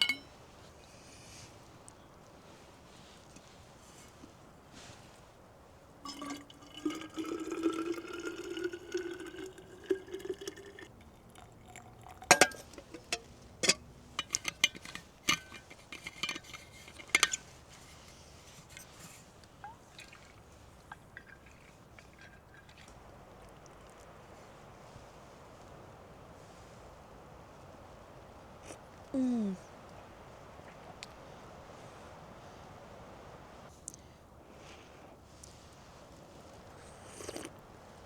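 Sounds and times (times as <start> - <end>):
sharp clinks and knocks: 0.0 - 0.4, 12.3 - 17.6
liquid pouring into container: 6.1 - 13.2, 19.6 - 24.1.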